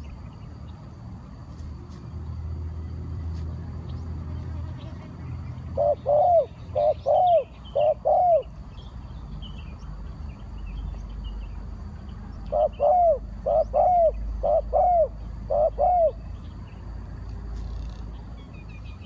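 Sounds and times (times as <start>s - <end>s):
small birds chirping: 3.9s - 19.0s
dove cooing: 5.6s - 8.5s, 12.5s - 16.3s.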